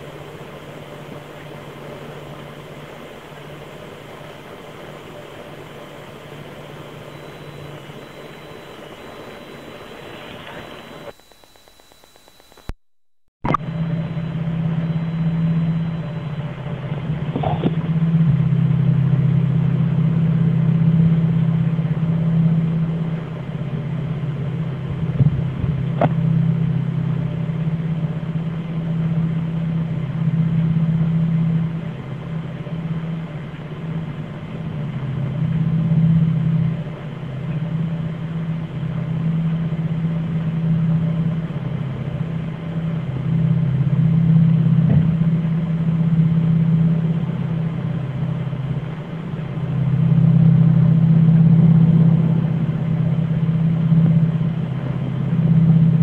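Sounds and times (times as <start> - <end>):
faint clicks: 10.3 - 12.8
low two-pitch drone: 13.4 - 56.0.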